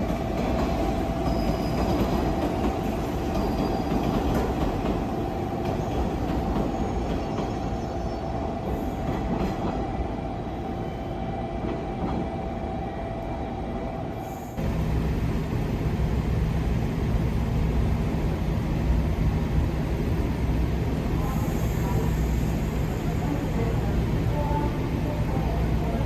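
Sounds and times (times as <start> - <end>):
train wheels rumbling on rails: 0.0 - 10.4, 14.5 - 26.0
electric train whine: 0.0 - 26.0.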